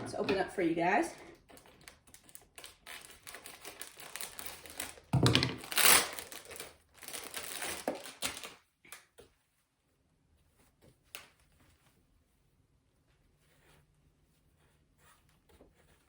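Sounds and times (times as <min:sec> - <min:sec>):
packaging crinkling: 0:01.4 - 0:08.6.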